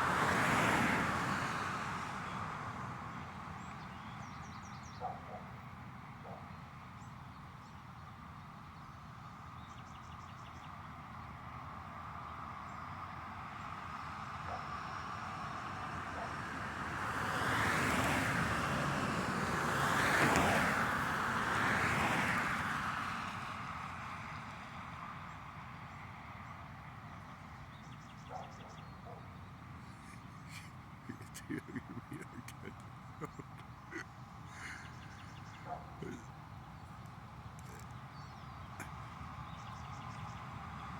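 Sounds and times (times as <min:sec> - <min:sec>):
vehicles passing close by: 0:00.0 - 0:40.9
traffic rumble: 0:10.8 - 0:40.9.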